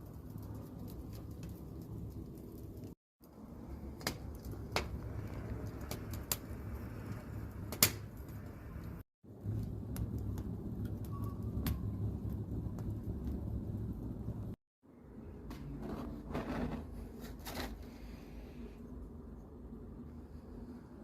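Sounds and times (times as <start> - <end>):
low outdoor rumble: 0.0 - 21.0
sharp clicks and snaps: 8.8 - 13.6.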